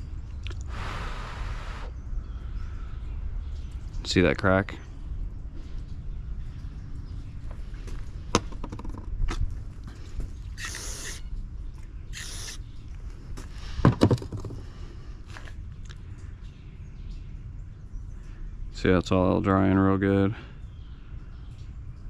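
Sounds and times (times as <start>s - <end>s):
aerosol can spraying: 10.6s - 11.2s, 12.2s - 12.6s.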